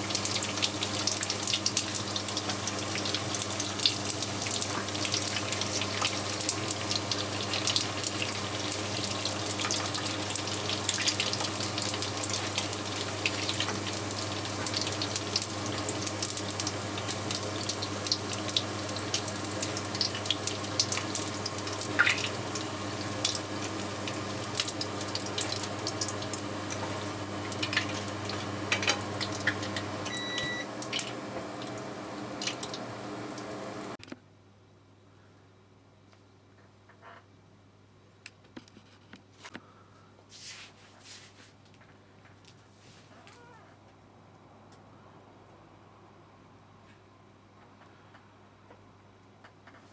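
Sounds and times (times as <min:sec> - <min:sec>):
food deep-frying in hot oil: 0:00.0 - 0:34.0
short beep: 0:30.1 - 0:30.7.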